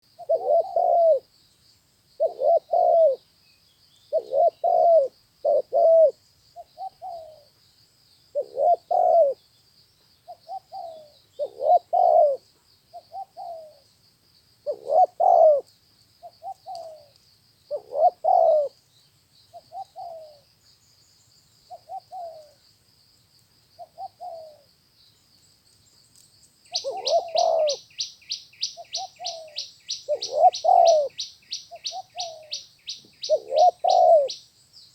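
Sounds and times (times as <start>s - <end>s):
dove cooing: 0.0s - 1.3s, 2.2s - 3.2s, 4.1s - 7.5s, 8.3s - 9.4s, 10.3s - 12.4s, 13.0s - 13.8s, 14.6s - 15.7s, 16.3s - 17.1s, 17.7s - 18.8s, 19.5s - 20.4s, 21.7s - 22.6s, 23.8s - 24.7s, 26.7s - 27.9s, 28.7s - 34.4s.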